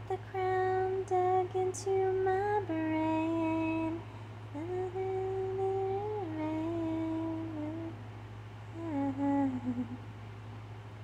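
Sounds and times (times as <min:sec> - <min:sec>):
woman humming a melody: 0:04.6 - 0:08.0, 0:08.7 - 0:10.0.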